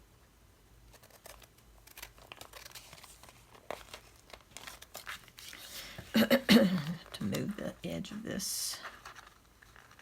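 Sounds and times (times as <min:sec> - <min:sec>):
paper crinkling: 0:00.9 - 0:07.6, 0:08.7 - 0:10.0.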